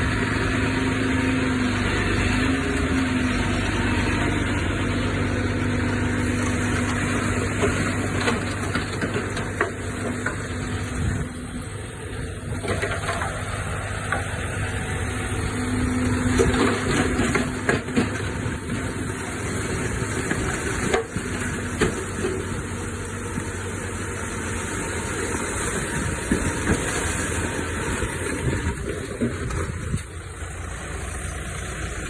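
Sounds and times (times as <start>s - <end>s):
diesel engine running: 0.0s - 32.0s
sharp clanks and knocks: 12.5s - 14.3s.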